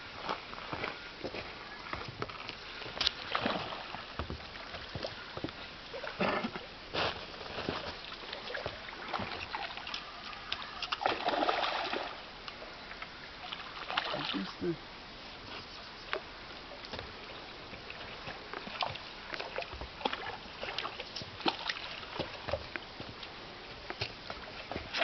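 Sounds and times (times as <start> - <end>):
fish thrashing water splashing: 10.6 - 12.2.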